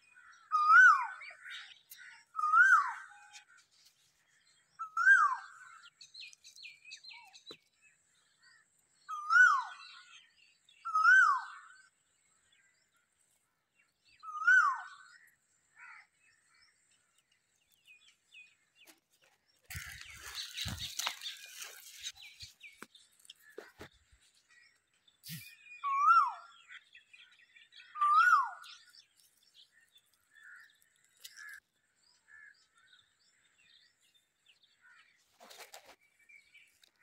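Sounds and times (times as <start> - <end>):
bird calling: 0.1 - 3.7, 19.7 - 31.6
faint bird chirps: 13.8 - 37.0
rustling noise: 19.1 - 22.8, 35.2 - 36.1.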